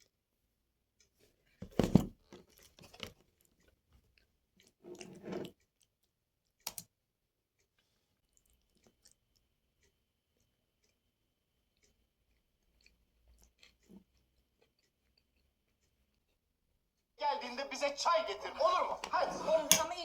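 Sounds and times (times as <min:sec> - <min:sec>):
person chewing and crunching: 0:02.2 - 0:06.6, 0:07.6 - 0:16.4.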